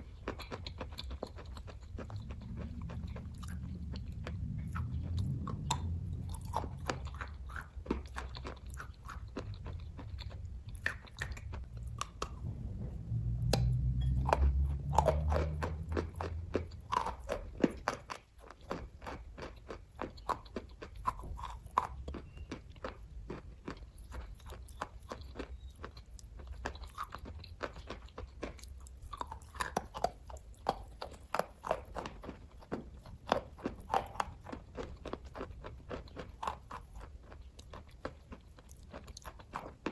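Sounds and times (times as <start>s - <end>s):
low rumble: 0.0s - 23.1s
wet chewing and mouth clicks: 0.0s - 39.9s.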